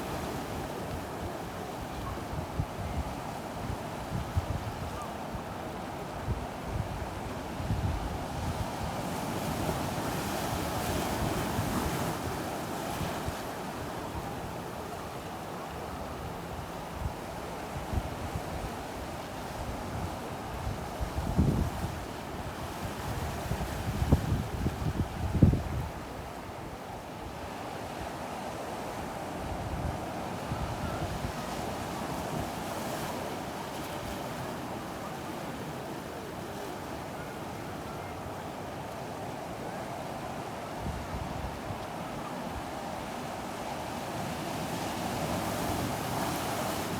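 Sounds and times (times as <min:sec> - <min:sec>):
ocean surf washing on beach: 0:00.0 - 0:46.9
waves washing on beach: 0:26.0 - 0:46.9.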